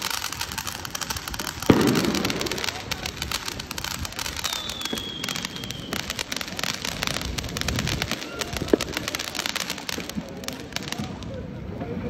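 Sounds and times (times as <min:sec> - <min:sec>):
crackling pops: 0:00.0 - 0:11.2
sharp crack: 0:00.0 - 0:11.2
thin high whistle: 0:04.4 - 0:06.2.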